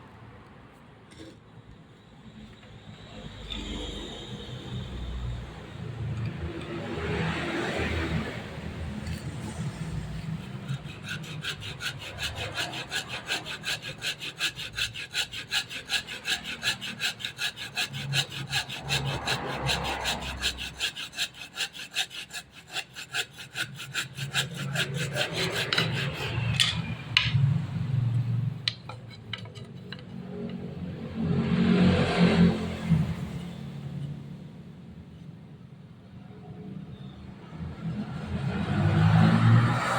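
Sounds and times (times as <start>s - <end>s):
hand saw cutting wood: 6.0s - 27.4s, 28.7s - 33.0s.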